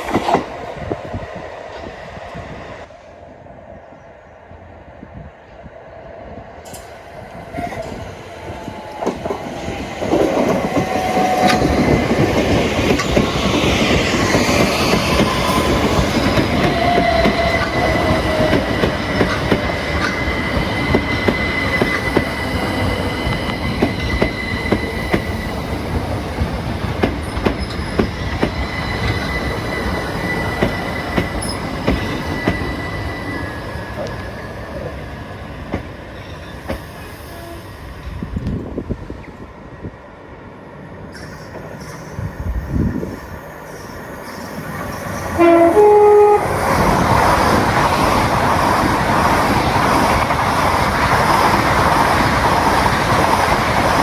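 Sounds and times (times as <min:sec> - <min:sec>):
train running past: 0:00.0 - 0:54.0
high wheel squeal: 0:14.3 - 0:26.1, 0:27.2 - 0:34.9.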